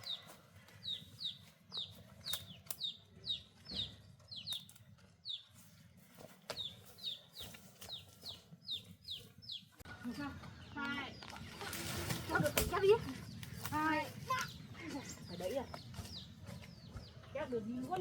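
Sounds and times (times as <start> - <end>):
chicks peeping: 0.0 - 5.5, 6.5 - 9.8, 14.4 - 17.5.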